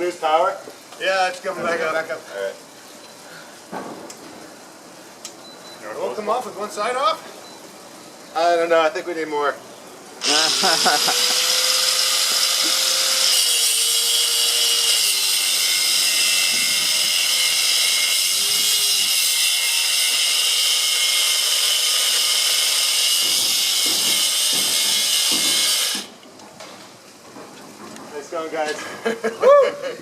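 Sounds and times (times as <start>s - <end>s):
angle grinder cutting metal: 10.2s - 26.1s.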